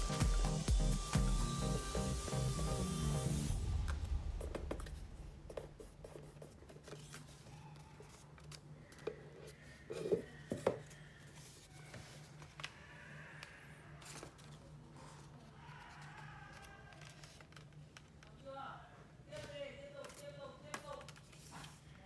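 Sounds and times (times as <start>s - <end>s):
low steady hum: 0.0s - 7.9s
paper rustling and folding: 5.6s - 10.0s, 10.8s - 18.4s, 19.3s - 22.0s
paper crinkling: 5.8s - 9.0s, 14.0s - 18.4s.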